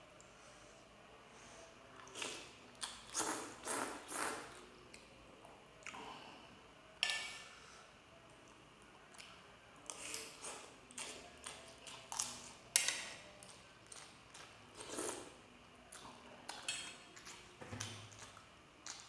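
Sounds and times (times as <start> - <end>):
cutlery clinking on a plate: 7.0 - 7.5.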